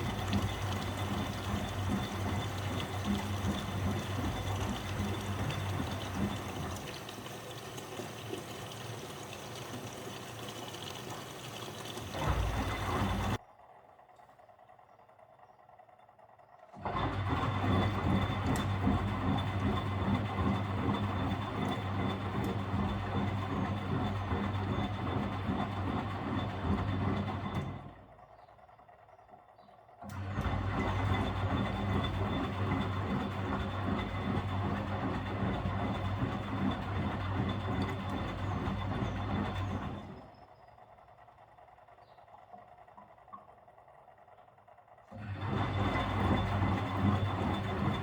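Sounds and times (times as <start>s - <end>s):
washing machine motor humming: 0.0s - 13.4s, 16.8s - 28.0s, 30.0s - 40.3s, 45.1s - 48.0s.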